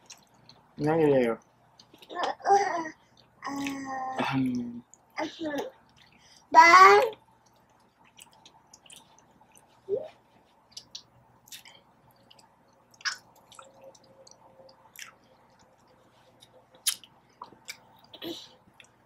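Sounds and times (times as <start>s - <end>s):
person chewing food: 0.0s - 0.8s, 1.6s - 2.2s, 5.8s - 6.5s, 7.3s - 19.0s.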